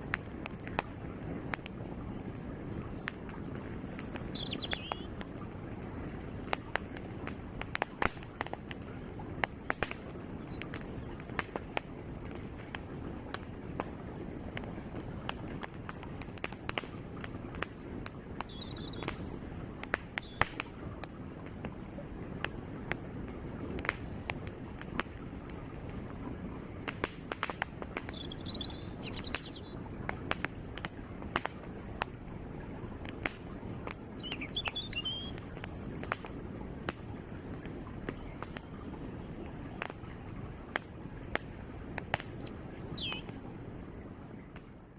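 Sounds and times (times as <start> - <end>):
campfire crackling and popping: 0.0 - 44.9
creek flowing: 0.0 - 44.9
bird chirps: 3.2 - 5.1, 10.4 - 11.4, 17.7 - 20.5, 28.0 - 29.8, 34.2 - 36.2, 42.3 - 44.0.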